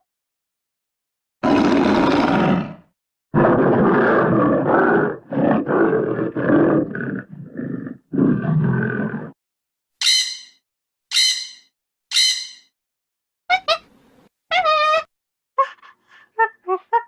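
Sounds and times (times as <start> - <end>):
animal roaring and grunting: 1.4 - 9.4.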